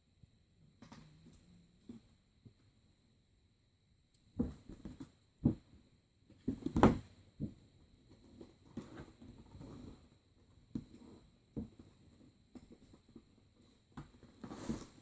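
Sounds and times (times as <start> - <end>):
rustling of cardboard and plastic: 6.3 - 15.0.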